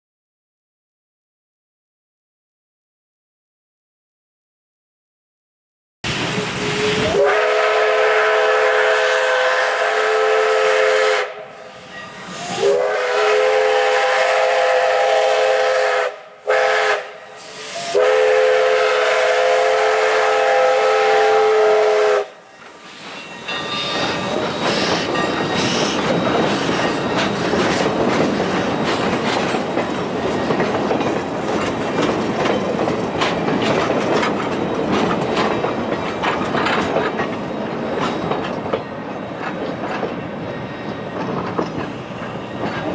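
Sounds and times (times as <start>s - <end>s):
steam locomotive running: 6.1s - 42.9s
chime steam whistle: 6.3s - 27.6s.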